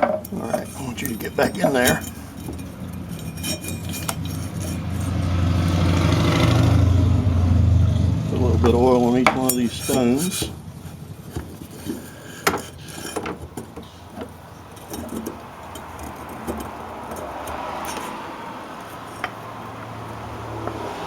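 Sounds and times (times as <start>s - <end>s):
metal tools clinking and rattling: 0.0s - 6.1s, 8.6s - 19.6s.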